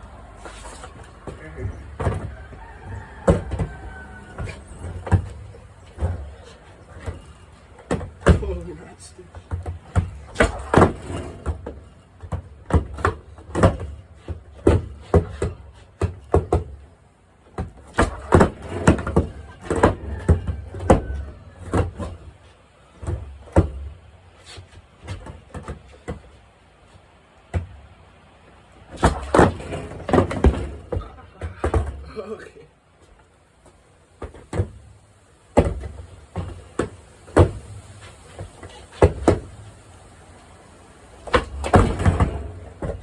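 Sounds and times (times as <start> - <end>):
skateboard wheels rolling: 0.0 - 8.4, 9.4 - 16.9, 17.5 - 32.0, 33.1 - 43.0
skateboard clacking on ground: 9.4 - 12.0, 17.6 - 22.3, 28.9 - 32.0, 41.2 - 43.0.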